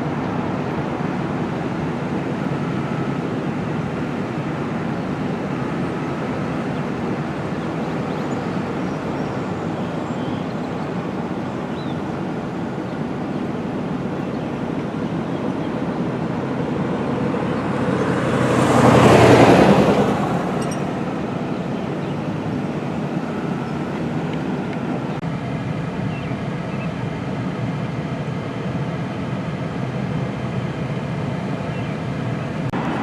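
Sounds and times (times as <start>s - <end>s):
steady traffic noise: 0.0s - 33.0s
vehicle passing close by: 15.5s - 25.2s, 32.7s - 33.0s.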